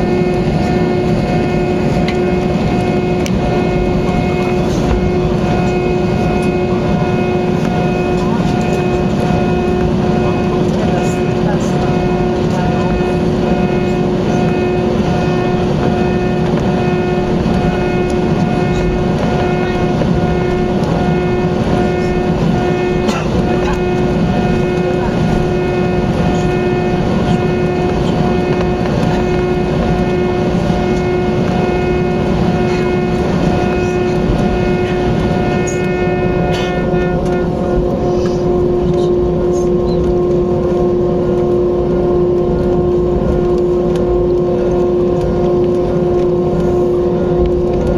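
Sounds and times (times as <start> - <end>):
jet engines rumbling and whining: 0.0 - 47.9.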